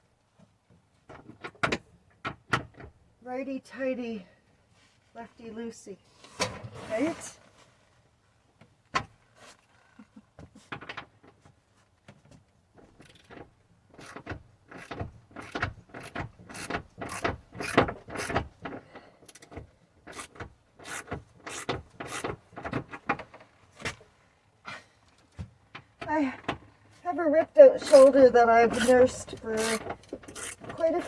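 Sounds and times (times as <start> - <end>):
wrench clicking on a bolt: 14.0 - 18.5, 19.3 - 22.3, 28.7 - 30.8.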